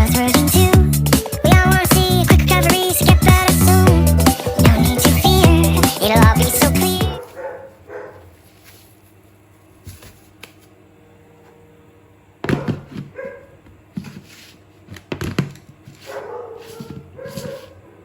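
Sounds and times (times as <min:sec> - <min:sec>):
dog barking: 0:07.2 - 0:08.4, 0:12.5 - 0:13.6, 0:16.0 - 0:18.0.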